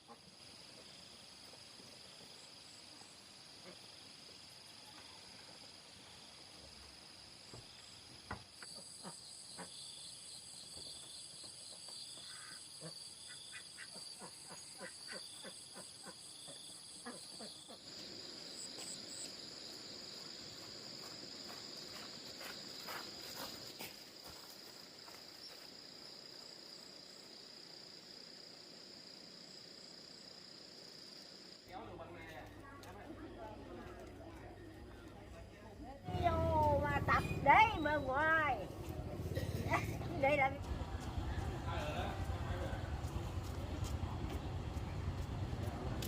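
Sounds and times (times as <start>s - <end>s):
insects trilling: 0.0s - 33.0s.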